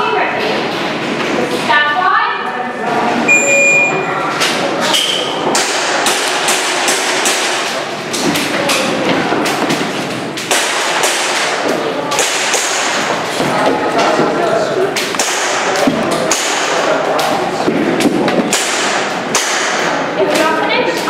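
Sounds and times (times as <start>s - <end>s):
airsoft pistol shots: 10.5s - 13.0s.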